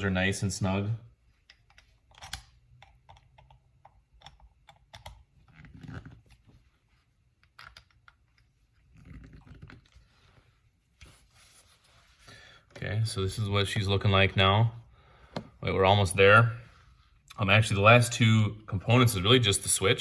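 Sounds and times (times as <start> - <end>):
screwdriver and metal parts clicking: 1.4 - 5.2
soft handling rustle: 8.2 - 13.2.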